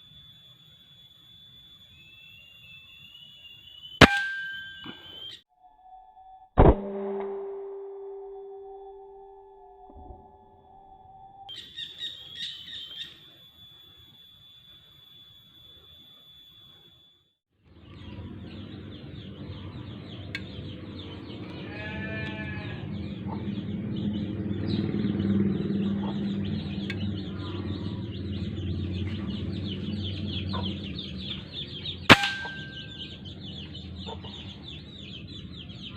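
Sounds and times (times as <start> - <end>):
dense high chirring: 0.0 - 17.3, 26.3 - 35.5
air rifle shot: 6.6 - 7.7
steady low hum: 17.7 - 35.9
farm animal calls: 19.1 - 35.9.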